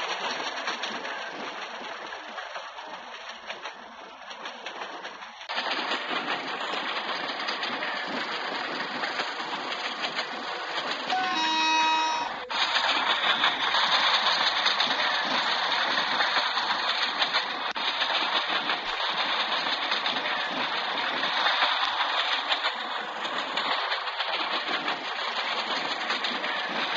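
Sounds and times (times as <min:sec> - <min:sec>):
train running on rails: 0:00.0 - 0:26.9
train horn: 0:11.1 - 0:12.5.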